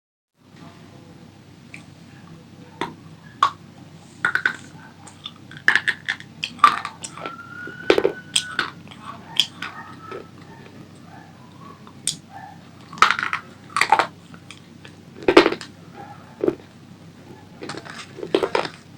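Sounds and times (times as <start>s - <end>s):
crunchy snack being chewed: 4.2s - 10.8s, 12.8s - 18.8s.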